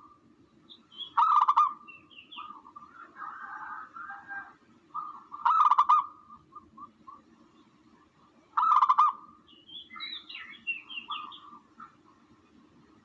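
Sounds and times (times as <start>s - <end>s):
buzzy bird calls with trill: 0.7s - 3.0s, 8.6s - 12.0s
high bird chattering: 0.9s - 2.8s.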